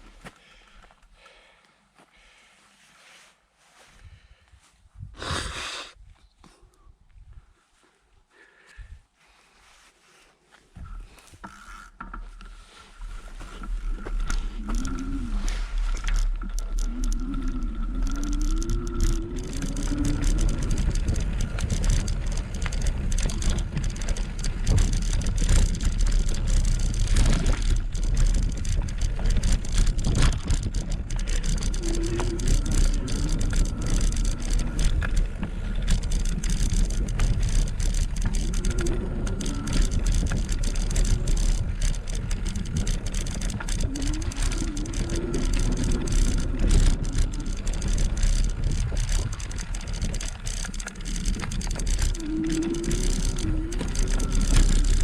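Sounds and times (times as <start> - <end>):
thin steady whine: 10.8 - 55.0
tyre noise on road: 10.8 - 55.0
wind buffeting a camera: 13.0 - 55.0.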